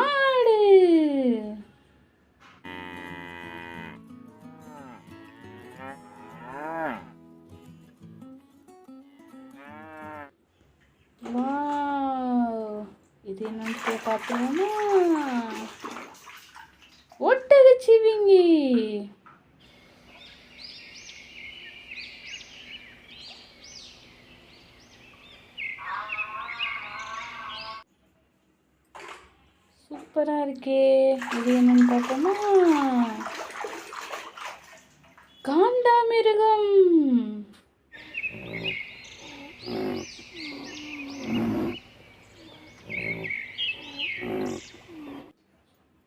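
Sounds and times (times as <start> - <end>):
high bird chirps: 24.8 - 27.8, 37.9 - 45.2
lower warbling call: 38.0 - 45.3.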